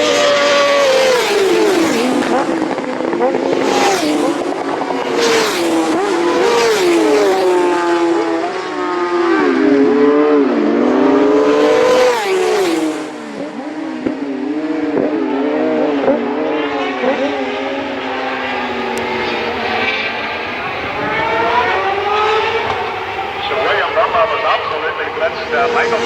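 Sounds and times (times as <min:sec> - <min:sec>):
racing motorcycles passing: 0:00.0 - 0:26.0.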